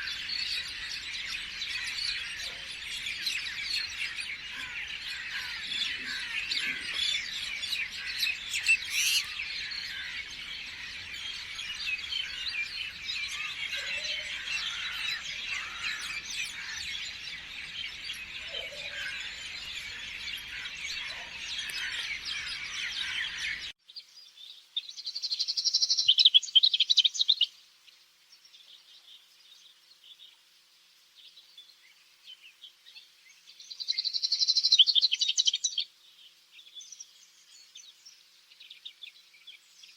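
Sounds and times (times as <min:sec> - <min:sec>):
birds chirping in chorus: 0:00.0 - 0:30.4, 0:31.2 - 0:39.9
bird high trilling: 0:07.9 - 0:10.2.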